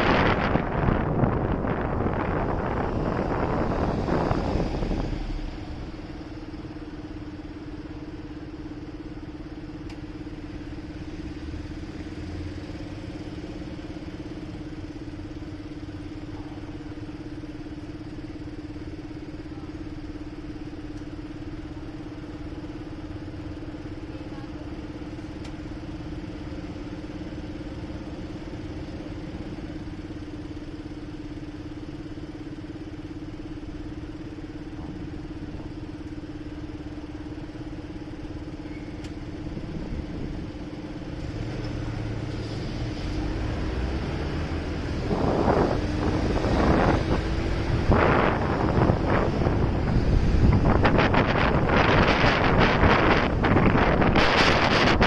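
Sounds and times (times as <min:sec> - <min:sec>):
motorcycle engine idling: 0:00.0 - 0:41.2.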